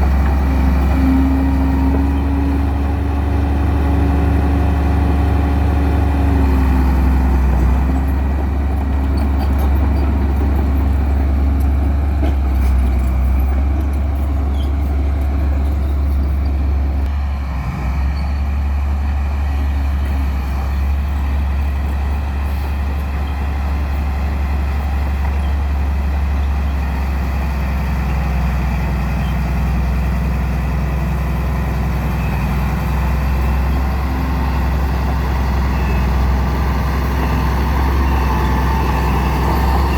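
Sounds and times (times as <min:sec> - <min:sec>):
heavy vehicle engine droning: 0:00.0 - 0:39.9.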